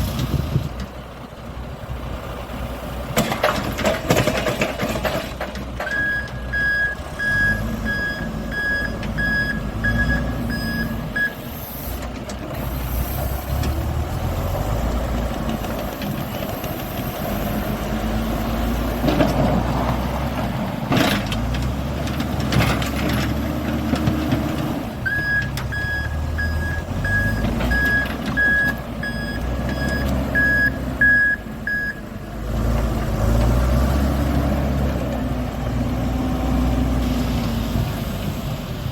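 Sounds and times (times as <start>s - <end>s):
diesel engine under load: 0.0s - 38.9s
reversing alarm beeping: 5.9s - 11.6s, 25.0s - 32.1s.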